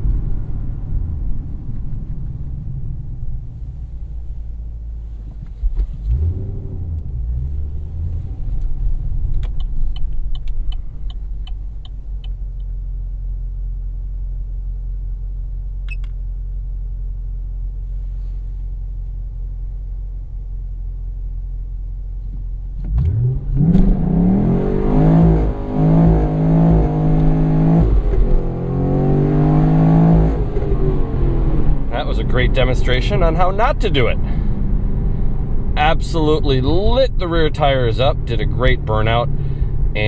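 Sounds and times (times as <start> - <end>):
car engine idling and revving: 0.0 - 40.0.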